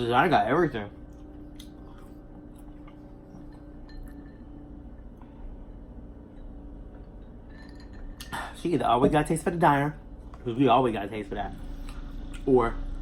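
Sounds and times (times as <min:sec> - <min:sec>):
low room hum: 0:00.0 - 0:13.0
chewing and mouth sounds: 0:01.0 - 0:03.6.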